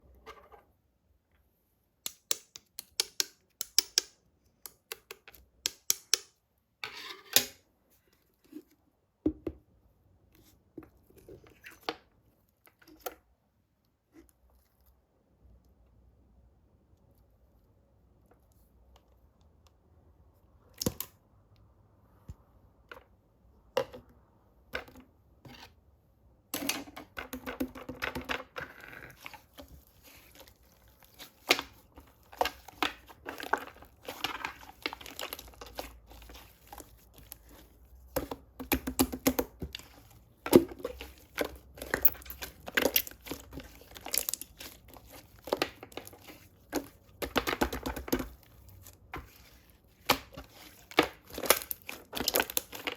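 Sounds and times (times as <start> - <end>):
craft material crinkling and tearing: 28.7 - 38.3, 39.2 - 52.9.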